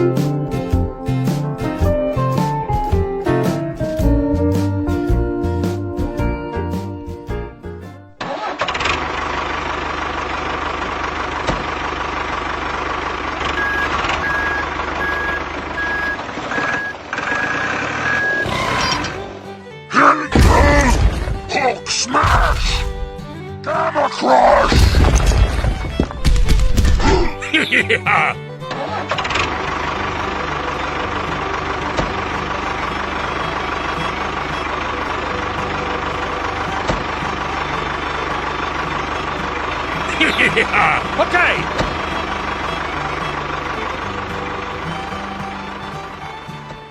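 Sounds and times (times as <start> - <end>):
vehicle engine starting and running: 0.0 - 46.9
reversing alarm beeping: 13.6 - 19.1.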